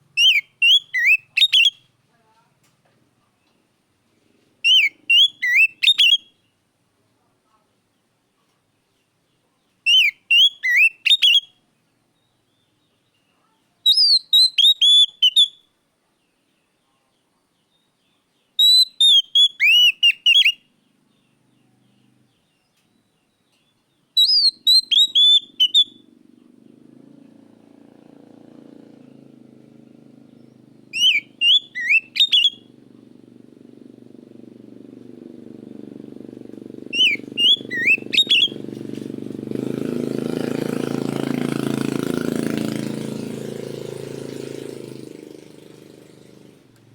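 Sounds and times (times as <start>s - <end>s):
bird singing whistled phrases: 0.2s - 1.9s, 4.6s - 6.4s, 9.9s - 11.5s, 13.8s - 15.7s, 18.6s - 20.7s, 24.2s - 26.1s, 30.3s - 32.8s, 36.9s - 38.7s
low motor vehicle rumble: 24.6s - 46.9s.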